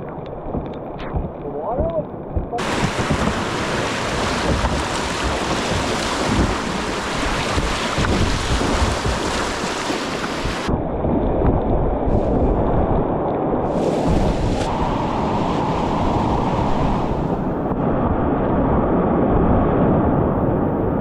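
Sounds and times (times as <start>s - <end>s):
wind buffeting microphone: 0.5s - 21.0s
river whitewater rushing: 2.6s - 10.7s, 13.7s - 17.6s.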